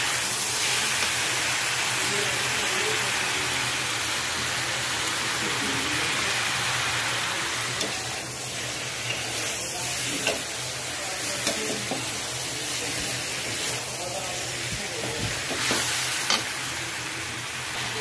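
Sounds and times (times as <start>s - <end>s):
vegetables sizzling in a pan: 0.0s - 18.0s.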